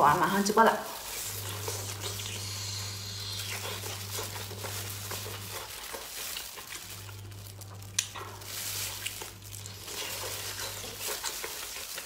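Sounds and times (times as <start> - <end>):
steady low hum: 1.0 - 11.8
wet chewing and sucking: 1.0 - 12.0
sharp wet mouth clicks: 7.9 - 8.1.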